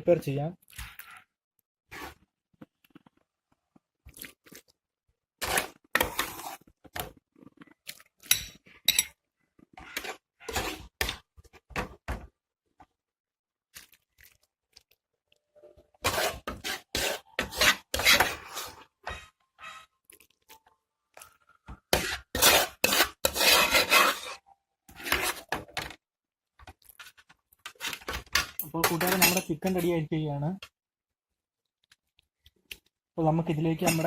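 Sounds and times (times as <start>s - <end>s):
utensil scraping a pan: 5.4s - 6.6s, 9.7s - 11.2s, 16.0s - 19.3s, 21.9s - 25.8s, 33.8s - 34.0s.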